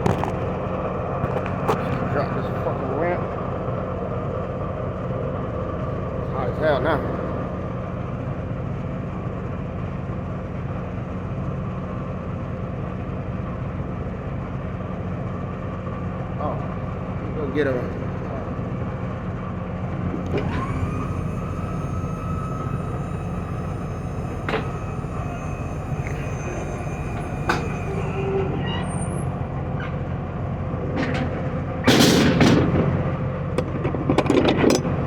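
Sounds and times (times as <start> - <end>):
truck engine idling: 0.0 - 34.1
loud burst of noise: 16.5 - 32.9.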